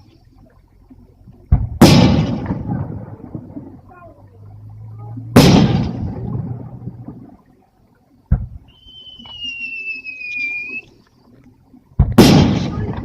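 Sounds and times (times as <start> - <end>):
fireworks bursting with crackle: 1.7 - 2.9, 12.0 - 13.0.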